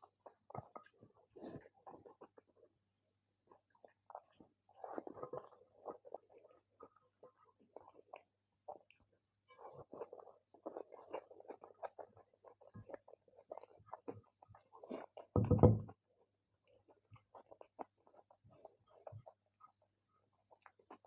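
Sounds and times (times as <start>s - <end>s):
chewing and wet mouth sounds: 0.0s - 21.0s
low thump: 15.4s - 15.9s.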